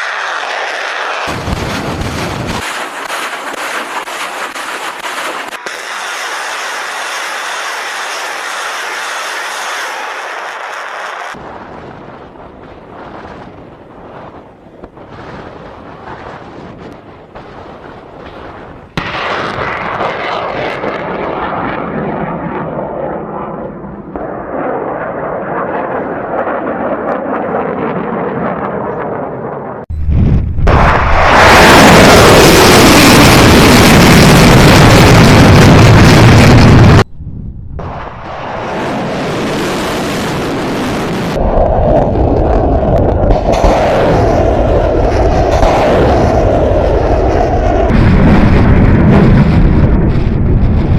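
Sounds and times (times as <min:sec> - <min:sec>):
rocket motors rushing and rumbling: 0:07.8 - 0:50.9
rocket motor roaring: 0:29.9 - 0:37.0, 0:37.8 - 0:50.9.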